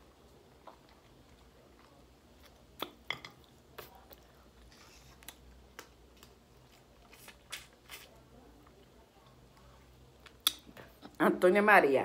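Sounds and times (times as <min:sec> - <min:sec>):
person chewing food: 0:00.0 - 0:11.1
wet mouth clicks and lip smacks: 0:10.2 - 0:10.7.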